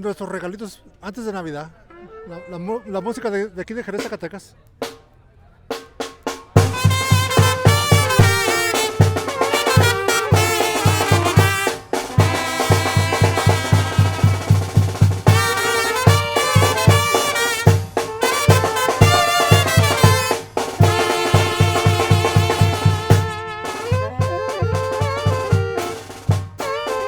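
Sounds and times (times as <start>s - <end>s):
bass drum beating: 6.5s - 26.6s
trumpets and brass playing melody: 6.6s - 27.0s.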